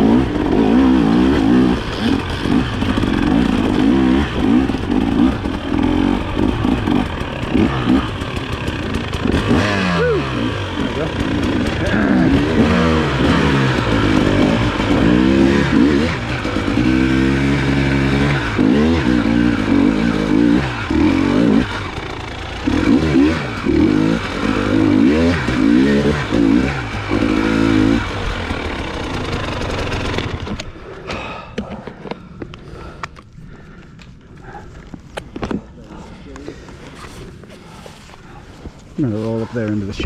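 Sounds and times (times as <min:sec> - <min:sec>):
dirt bike engine revving: 0:00.0 - 0:30.8.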